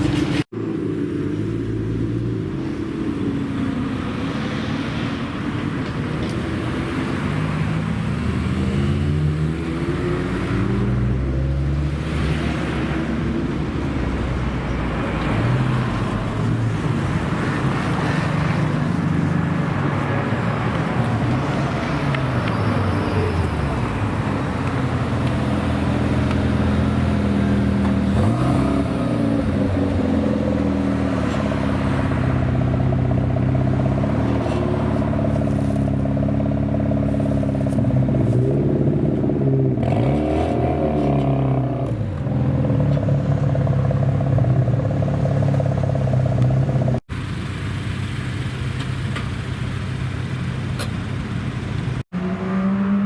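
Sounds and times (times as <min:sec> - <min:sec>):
car engines idling: 0:13.1 - 0:39.3, 0:42.0 - 0:52.1
engine revving: 0:19.6 - 0:47.0, 0:52.0 - 0:53.0.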